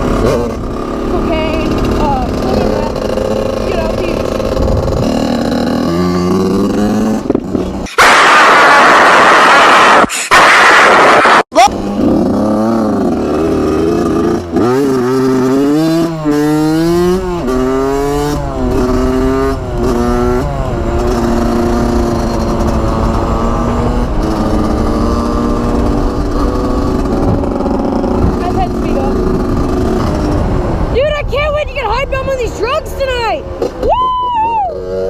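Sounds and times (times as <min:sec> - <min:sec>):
loud rush of noise: 0:00.0 - 0:14.6
dirt bike engine accelerating: 0:00.0 - 0:35.0.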